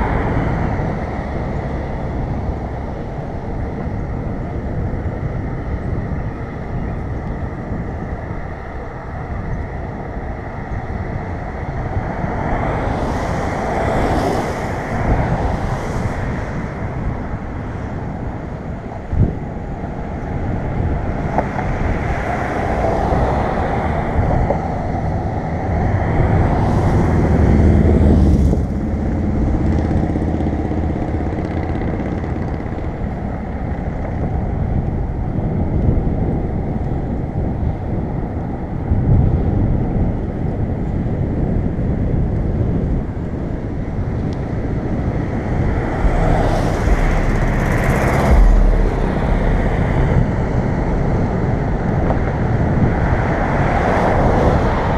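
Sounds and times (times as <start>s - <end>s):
wind rushing over microphone: 0.0s - 54.9s
motor vehicles passing close: 10.1s - 36.0s, 43.6s - 54.9s.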